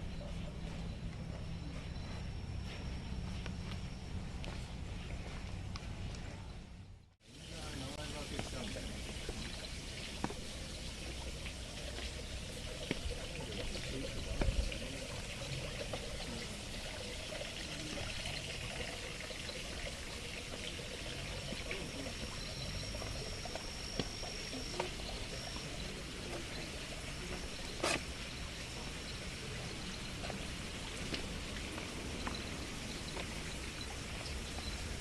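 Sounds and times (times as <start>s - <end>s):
thin high steady tone: 6.4s - 35.0s
stream water trickling: 7.2s - 35.0s.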